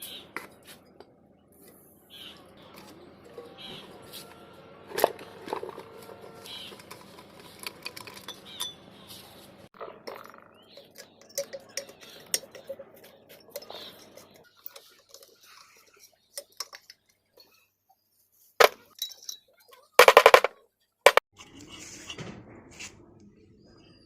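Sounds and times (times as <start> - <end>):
metal tools clinking: 4.9 - 17.6, 18.6 - 20.5.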